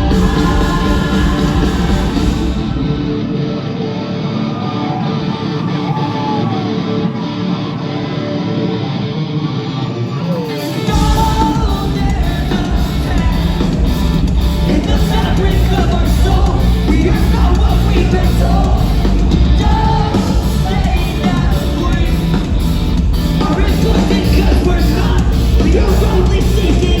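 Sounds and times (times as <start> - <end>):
person singing: 0.0 - 3.6, 9.9 - 14.0, 14.7 - 22.6, 23.4 - 27.0
drums and bass: 0.0 - 3.8, 10.6 - 27.0
electric guitar: 0.0 - 27.0.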